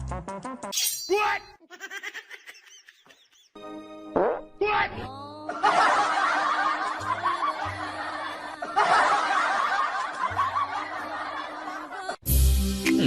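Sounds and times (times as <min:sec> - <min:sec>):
background music: 0:00.0 - 0:01.4, 0:03.6 - 0:13.0
people laughing: 0:05.5 - 0:12.2.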